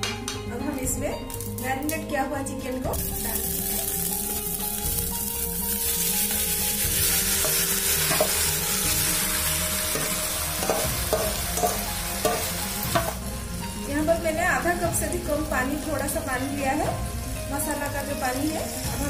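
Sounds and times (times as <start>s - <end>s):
chicken sizzling in oil: 2.9s - 13.5s, 15.0s - 19.0s
spoon knocking against pot: 10.6s - 13.2s.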